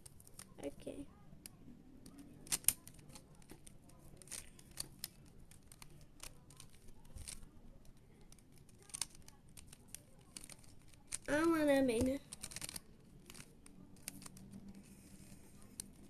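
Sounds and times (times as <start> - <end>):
plastic puzzle cube clicking: 1.4 - 11.3, 12.0 - 16.0.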